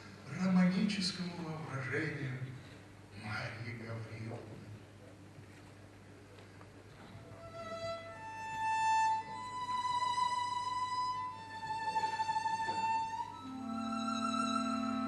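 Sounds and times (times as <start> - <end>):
violin playing slow melody: 7.3 - 15.0
lower strings holding a chord: 8.8 - 15.0.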